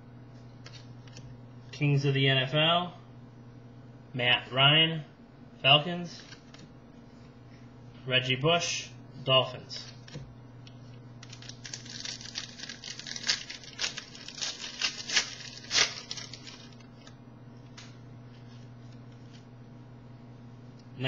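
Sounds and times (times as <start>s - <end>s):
wrapper tearing and crinkling: 11.2s - 17.1s.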